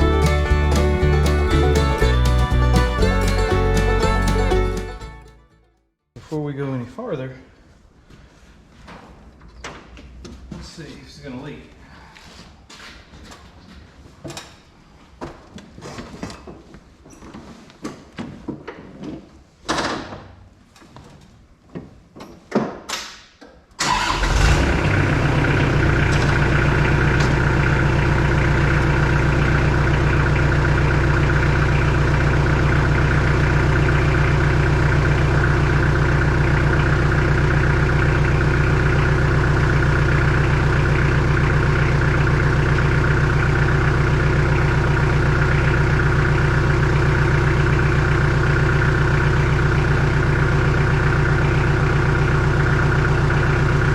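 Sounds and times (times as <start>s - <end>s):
knocks and clicks: 0.0s - 5.3s
diesel engine starting and idling: 0.0s - 5.7s, 23.8s - 53.9s.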